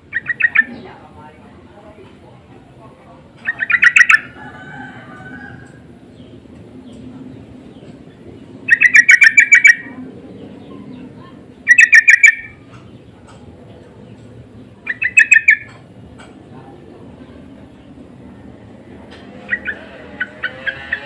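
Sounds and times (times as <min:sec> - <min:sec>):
bird rapid chattering calls: 0:00.1 - 0:01.0, 0:03.3 - 0:04.4, 0:07.7 - 0:13.5, 0:14.1 - 0:15.9, 0:19.4 - 0:21.0.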